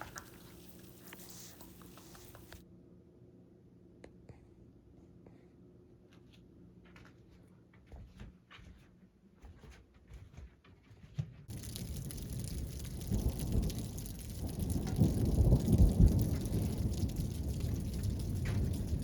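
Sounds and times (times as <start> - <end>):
heavy rain: 0.0 - 2.6, 11.5 - 19.0
thunder rumbling: 11.5 - 19.0.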